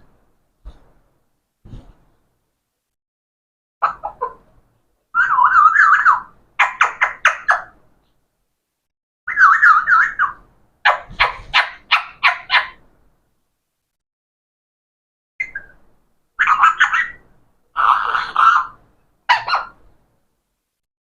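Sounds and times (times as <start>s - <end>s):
parrot trilling whistle: 15.4s - 15.8s.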